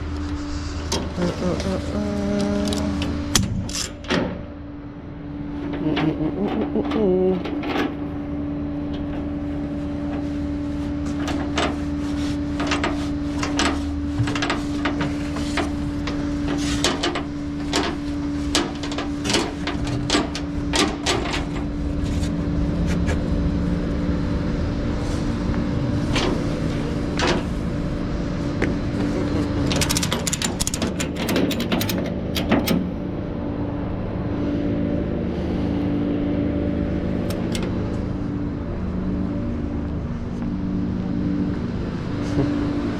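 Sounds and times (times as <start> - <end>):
tow truck engine humming: 0.0 - 42.9
metallic clicks and clanks: 2.4 - 4.4, 12.6 - 21.6, 29.6 - 32.9.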